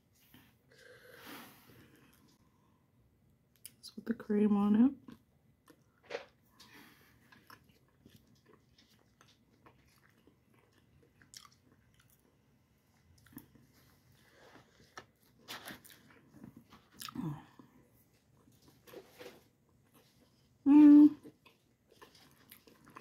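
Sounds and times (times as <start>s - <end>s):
person chewing biscuit: 6.7s - 20.6s, 21.2s - 23.0s.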